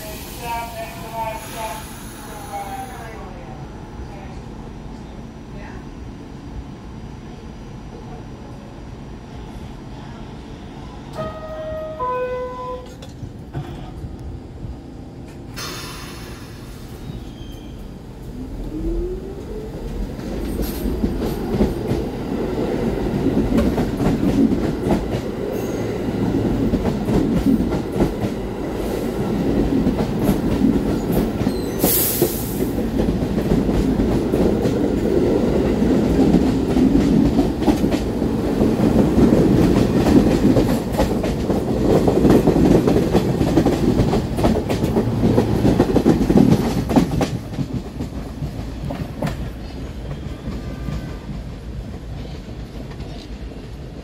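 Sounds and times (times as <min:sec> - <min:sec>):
subway train rumbling past: 0:00.0 - 0:54.0
brief hiss: 0:15.5 - 0:17.3.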